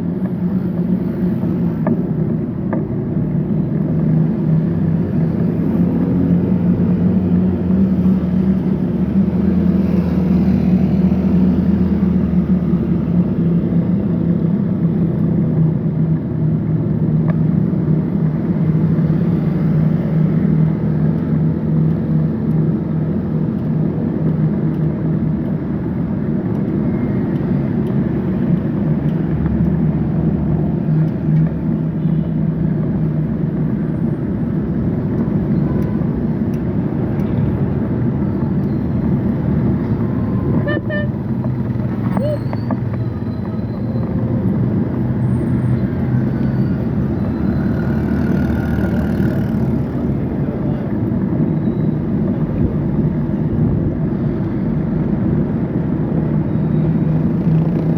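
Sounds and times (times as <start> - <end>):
road noise: 0.0 - 57.9
vehicle engine droning: 0.0 - 57.9.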